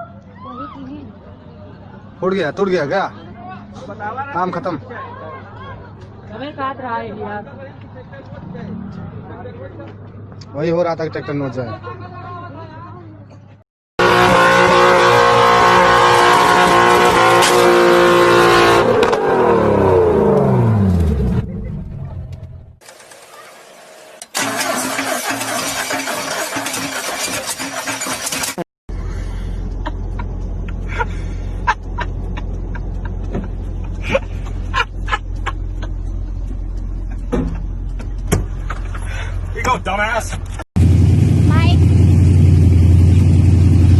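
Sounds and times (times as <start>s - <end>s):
vehicle engine rumble: 0.0s - 23.4s, 24.4s - 43.9s
car engine revving high: 14.0s - 21.5s.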